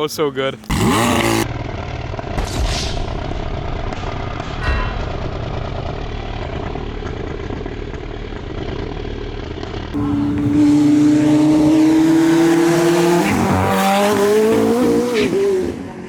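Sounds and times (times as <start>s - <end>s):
car engines rumbling: 0.0s - 16.0s
car engine revving high: 0.7s - 1.4s, 10.0s - 16.0s.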